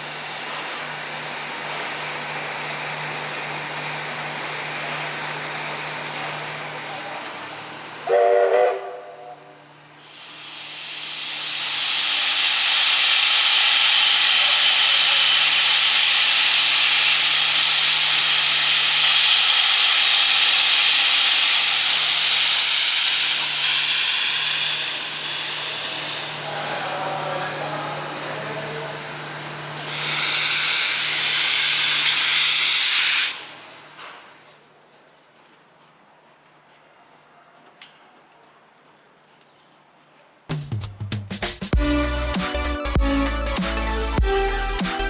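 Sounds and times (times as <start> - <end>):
steam locomotive venting steam: 0.0 - 9.4, 10.0 - 33.8.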